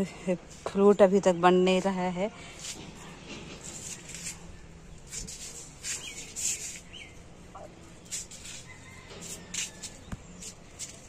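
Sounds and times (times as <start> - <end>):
rustling and handling noise: 1.7 - 7.3, 8.0 - 11.0.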